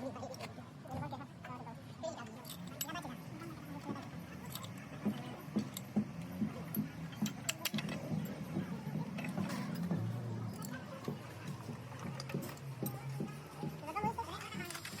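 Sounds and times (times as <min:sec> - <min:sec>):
metal tools clinking: 0:02.2 - 0:05.9.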